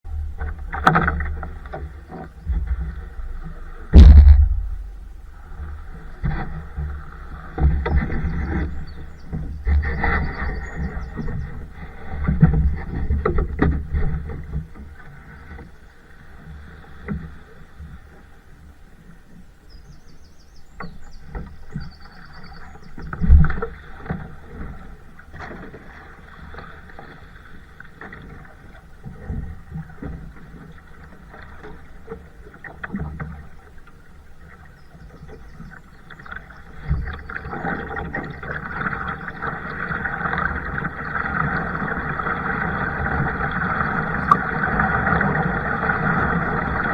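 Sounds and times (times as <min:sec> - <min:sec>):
paddle splashing water: 0:00.1 - 0:46.9
knocks on kayak hull: 0:03.9 - 0:05.2.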